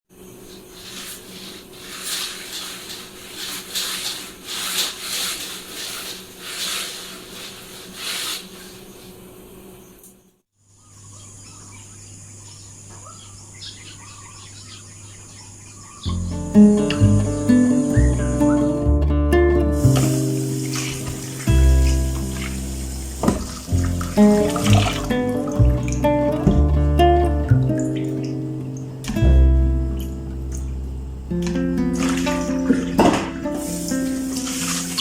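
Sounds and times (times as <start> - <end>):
high insect drone: 8.6 - 18.8, 19.6 - 25.6, 30.1 - 35.0
faint bird chirps: 10.7 - 18.8.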